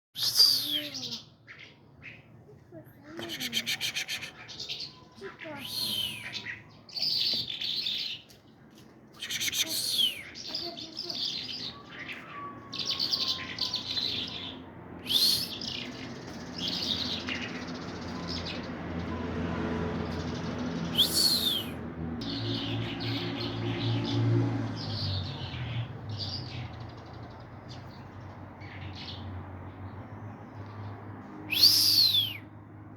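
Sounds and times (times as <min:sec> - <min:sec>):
sharp downward sweeping bird calls: 0:00.2 - 0:01.8, 0:03.2 - 0:08.2, 0:11.2 - 0:17.6, 0:20.8 - 0:24.2, 0:31.5 - 0:32.5
small birds chirping: 0:00.2 - 0:32.5.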